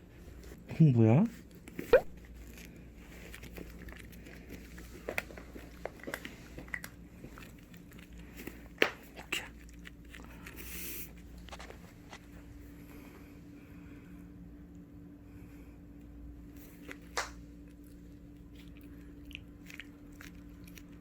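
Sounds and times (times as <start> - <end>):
puppy chewing kibble: 1.6 - 12.7, 16.6 - 21.0.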